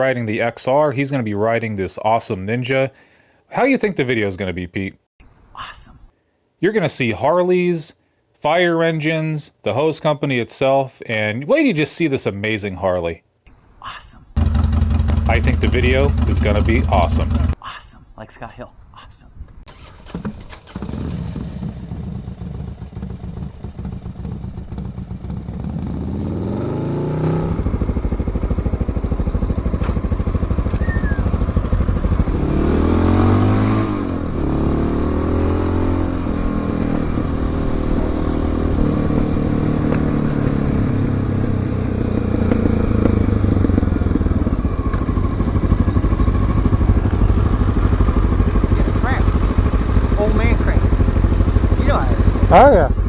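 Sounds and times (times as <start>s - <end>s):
motorcycle engine revving: 14.4s - 17.6s, 19.7s - 53.0s.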